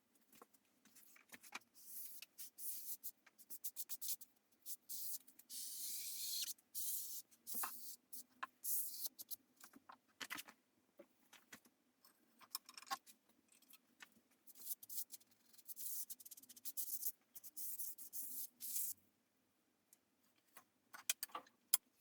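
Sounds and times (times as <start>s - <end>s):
small clicks and knocks: 9.6s - 14.2s, 20.3s - 21.9s.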